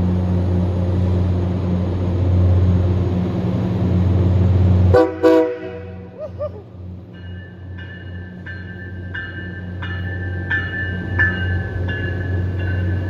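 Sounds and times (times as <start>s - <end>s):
low hum of train: 0.0s - 13.0s
train bell ringing: 7.0s - 13.0s.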